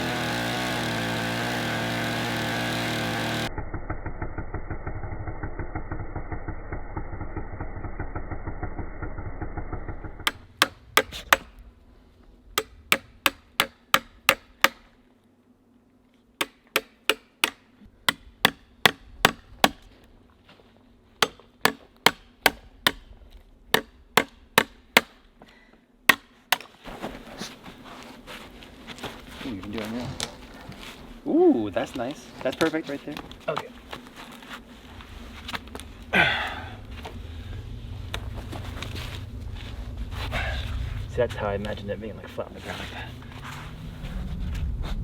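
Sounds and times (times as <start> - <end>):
engine running: 0.0 - 11.0, 35.0 - 45.0
hammer striking: 10.2 - 11.5, 12.6 - 14.8, 16.4 - 19.8, 21.2 - 23.0, 23.8 - 25.2.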